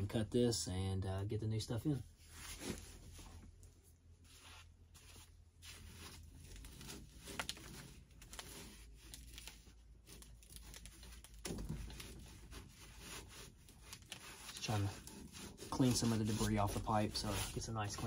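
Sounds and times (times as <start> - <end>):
scraping on copper pipe: 11.7 - 18.0.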